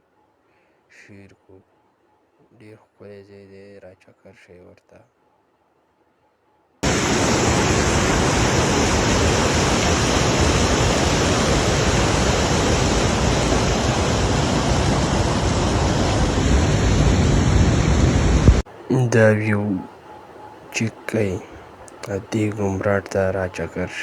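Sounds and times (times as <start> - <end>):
rushing water roaring: 6.8 - 24.0.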